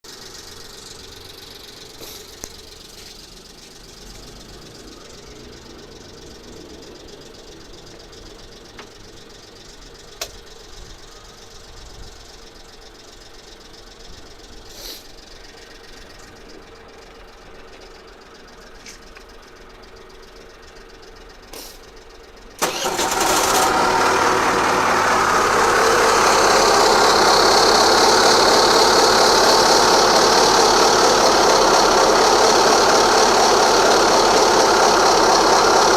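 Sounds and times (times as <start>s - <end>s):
scooter engine rattling: 0.1s - 35.9s.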